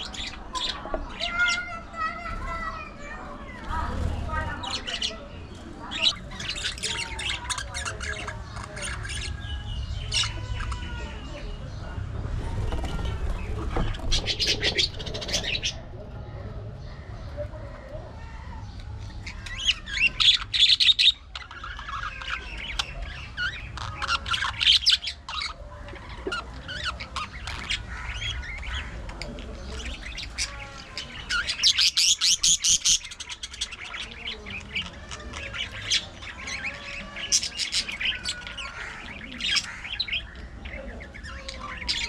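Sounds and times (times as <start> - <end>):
budgerigars chattering and chirping: 0.0 - 42.0
rapid bird squawks: 12.8 - 15.8, 30.0 - 40.3.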